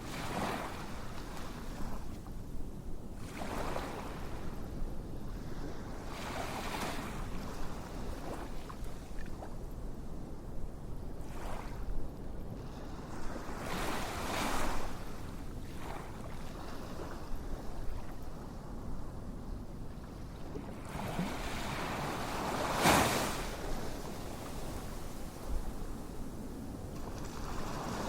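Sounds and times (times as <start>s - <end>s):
ocean waves washing: 20.8s - 28.0s.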